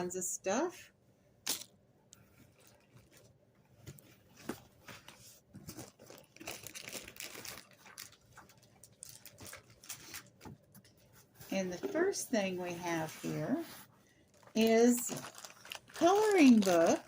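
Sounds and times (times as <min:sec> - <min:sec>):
packaging crinkling and rustling: 0:02.4 - 0:11.0, 0:13.0 - 0:17.0.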